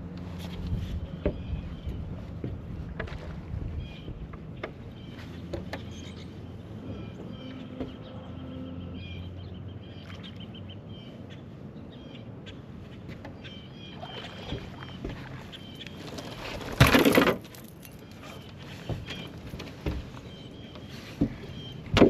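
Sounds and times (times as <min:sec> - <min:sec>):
birds chirping and singing: 0:03.7 - 0:16.4, 0:17.8 - 0:22.0.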